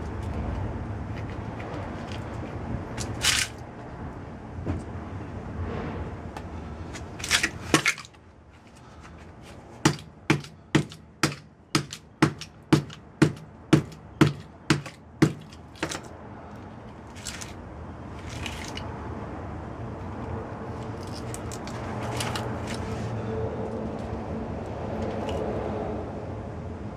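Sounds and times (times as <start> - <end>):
hammer striking metal transformer: 9.9 - 16.0.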